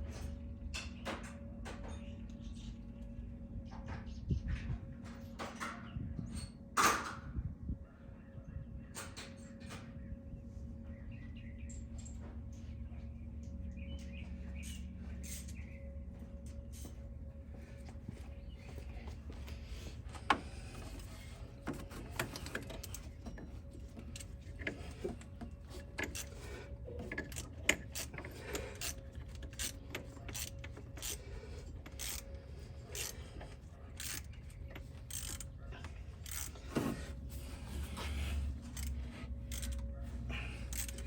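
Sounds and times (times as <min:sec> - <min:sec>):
steady low hum: 0:00.0 - 0:41.0
ratchet wrench clicking: 0:26.0 - 0:32.3, 0:32.9 - 0:35.5, 0:36.2 - 0:36.6, 0:38.7 - 0:39.8, 0:40.7 - 0:41.0.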